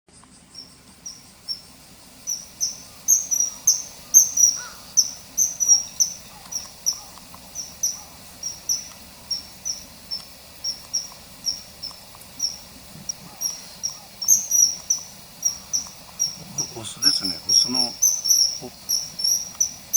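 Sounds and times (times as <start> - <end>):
kingfisher piercing whistles: 2.3 - 9.8, 13.3 - 19.9.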